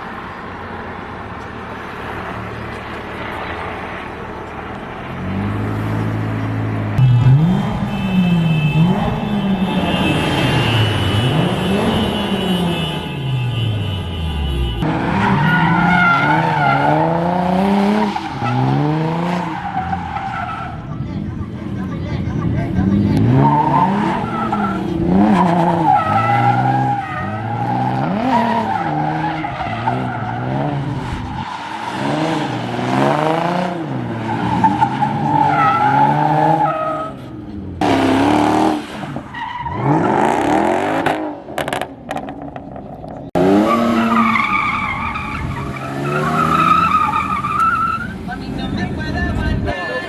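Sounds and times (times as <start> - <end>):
car engine revving: 0.7 - 13.0, 14.6 - 49.6
tyres squealing on pavement: 15.2 - 32.7, 34.1 - 37.4, 38.1 - 40.6, 42.1 - 50.0.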